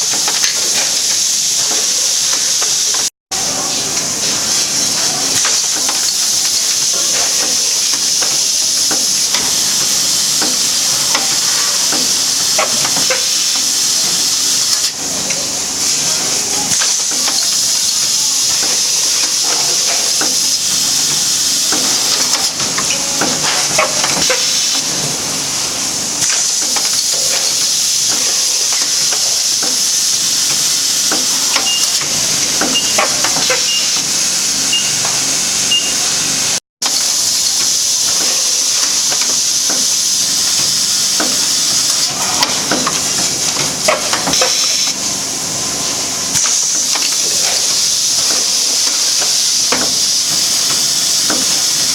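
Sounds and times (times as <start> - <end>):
packing machine air hiss: 0.0 - 51.9
short high beeps: 34.7 - 35.1, 35.7 - 36.1.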